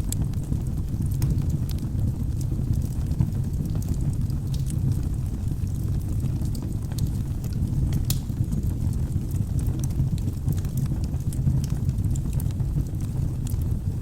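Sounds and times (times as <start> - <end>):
flames burning: 0.0 - 14.0
logs crackling and popping: 0.0 - 14.0.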